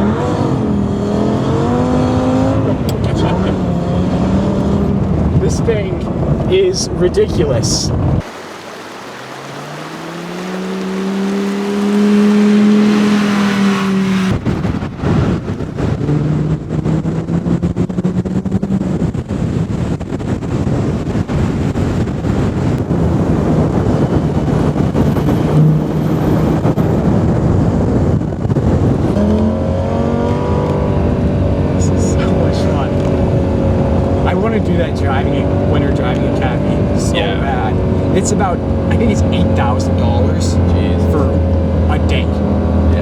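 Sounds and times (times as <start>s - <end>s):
loud rushing noise: 8.2s - 15.4s
sports car engine accelerating: 8.2s - 20.8s, 21.6s - 43.0s.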